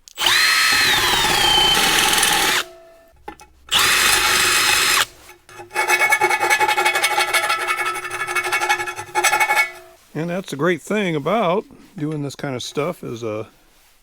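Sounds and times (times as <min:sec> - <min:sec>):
electric drill whining: 0:00.0 - 0:03.0, 0:03.7 - 0:05.2
drill bit chattering on metal: 0:00.0 - 0:10.0.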